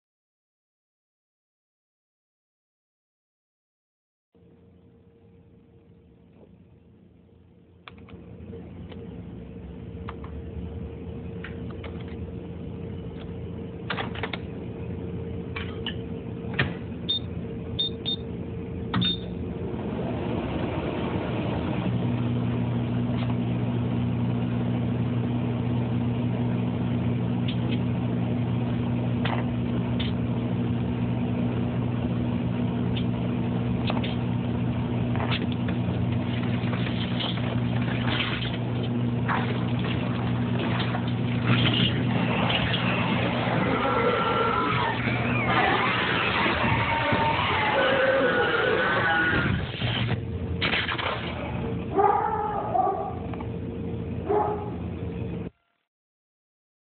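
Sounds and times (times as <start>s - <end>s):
microwave oven humming: 4.4s - 55.6s.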